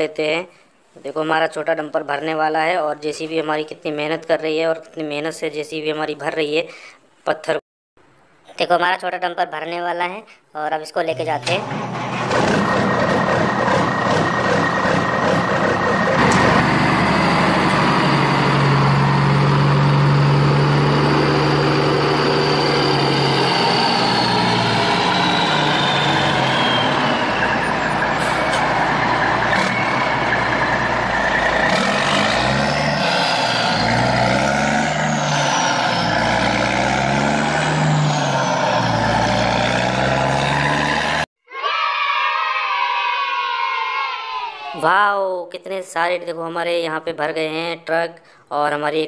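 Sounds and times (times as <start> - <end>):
heavy truck engine revving: 11.2 - 41.3.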